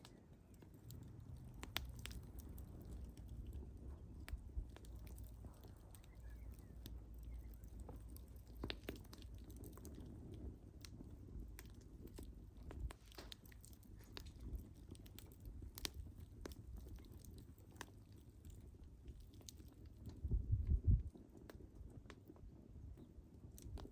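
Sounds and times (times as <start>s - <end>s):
wood fire crackling: 0.0s - 23.9s.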